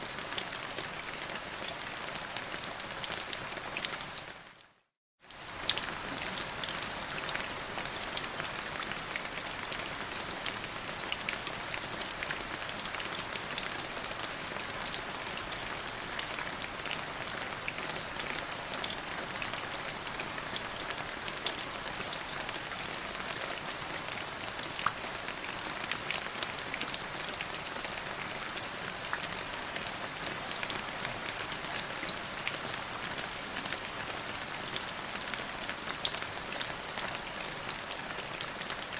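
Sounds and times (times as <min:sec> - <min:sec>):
rain on a hard surface: 0:00.0 - 0:38.9.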